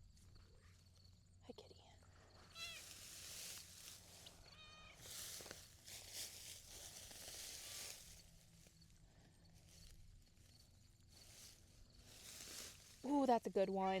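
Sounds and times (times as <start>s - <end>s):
rustling and scraping of soil: 2.1s - 14.0s
cat meow: 4.5s - 5.0s.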